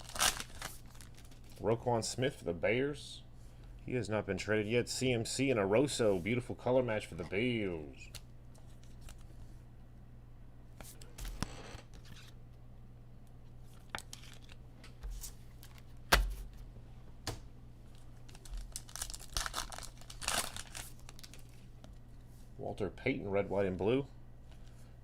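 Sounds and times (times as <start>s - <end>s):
cards and wrapper rustling: 0.0s - 1.7s, 13.7s - 14.6s, 17.9s - 21.8s
low electrical hum: 0.0s - 25.0s.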